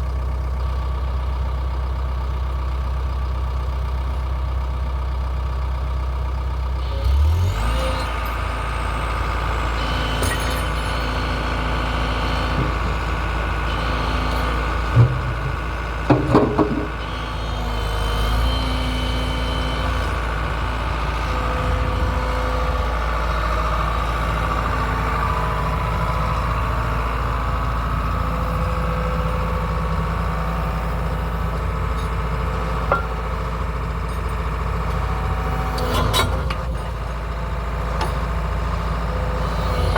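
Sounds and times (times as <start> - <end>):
excavator engine running: 0.0 - 39.9
sharp metal clanks: 10.1 - 11.3.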